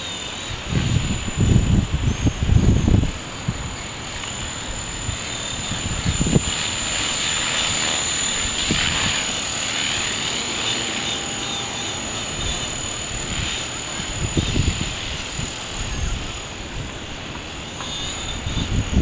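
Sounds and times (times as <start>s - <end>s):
thin high-pitched tone: 0.0s - 16.5s, 17.4s - 19.0s
strong wind gusting: 0.0s - 19.0s
wind buffeting microphone: 0.3s - 11.0s, 11.6s - 19.0s.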